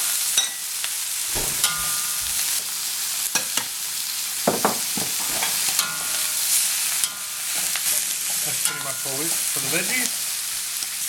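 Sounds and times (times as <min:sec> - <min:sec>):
stir fry sizzling in a pan: 0:00.0 - 0:11.0
utensil scraping and knocking pan: 0:01.3 - 0:02.7, 0:04.5 - 0:06.4.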